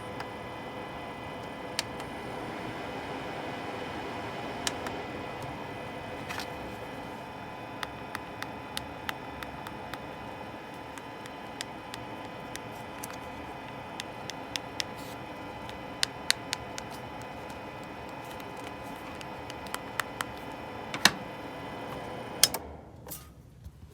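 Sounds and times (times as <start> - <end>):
heater fan whirring: 0.0 - 23.9
sharp clicks: 7.6 - 21.2.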